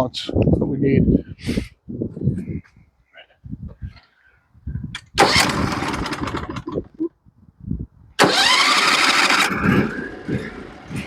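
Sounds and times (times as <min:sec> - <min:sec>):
gasoline engine cranking and starting: 0:05.0 - 0:07.0, 0:08.2 - 0:11.0.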